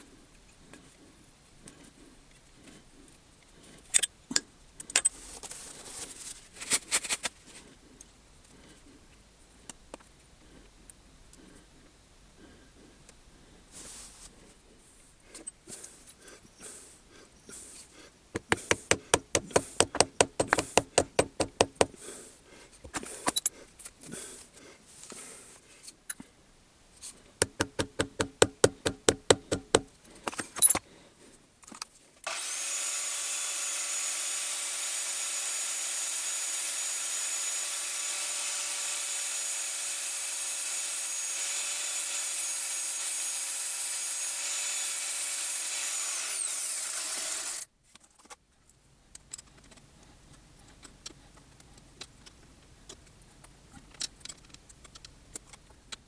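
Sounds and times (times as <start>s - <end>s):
power tool motor whining: 32.3s - 47.7s.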